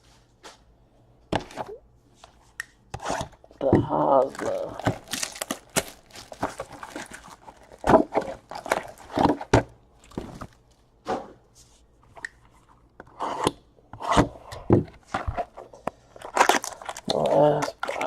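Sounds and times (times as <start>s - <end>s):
wrappers crinkling: 4.2s - 10.8s, 16.2s - 18.0s.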